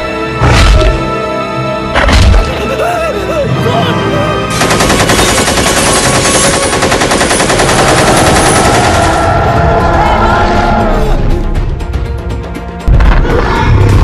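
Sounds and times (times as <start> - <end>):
automatic rifle fire: 4.6 - 8.9.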